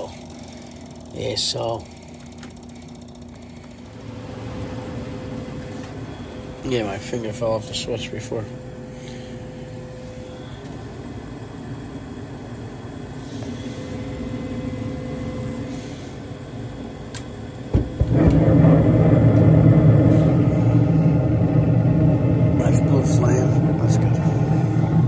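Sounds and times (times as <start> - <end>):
furnace motor humming: 0.0 - 25.0
burners igniting whoosh: 17.8 - 25.0.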